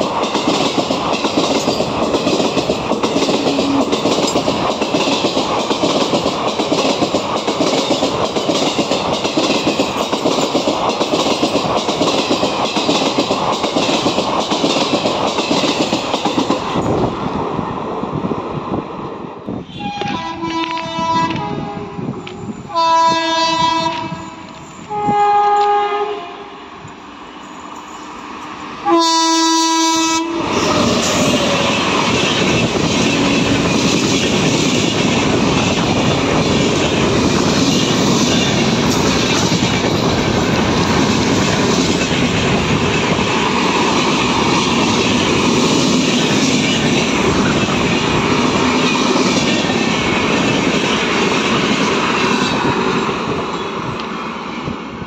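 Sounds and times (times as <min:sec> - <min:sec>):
train coaches rushing past: 0:00.0 - 0:55.0
locomotive horn blasts: 0:19.7 - 0:26.6, 0:28.8 - 0:31.3.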